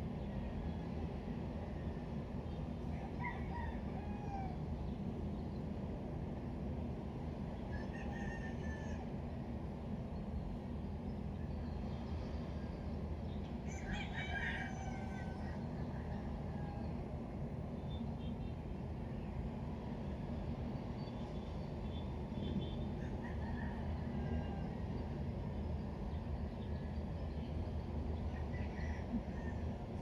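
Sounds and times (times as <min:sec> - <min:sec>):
rooster crowing: 0:03.0 - 0:04.6, 0:07.7 - 0:09.1, 0:13.7 - 0:15.6, 0:23.0 - 0:24.8.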